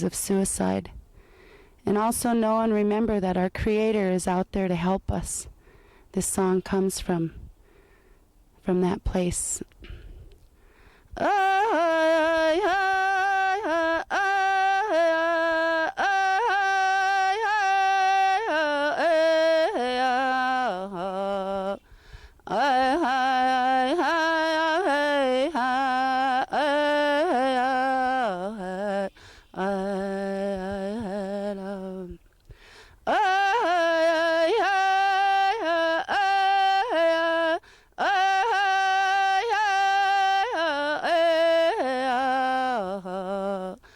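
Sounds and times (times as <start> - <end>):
man singing unaccompanied: 11.2 - 21.8, 22.5 - 32.2, 33.0 - 43.8.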